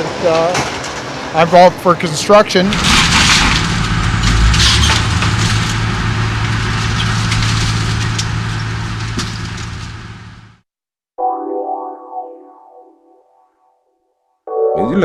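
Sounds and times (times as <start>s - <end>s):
heavy machine engine running: 0.0s - 10.6s
sharp cracks: 2.7s - 10.0s
crunching and splintering debris: 2.8s - 10.3s.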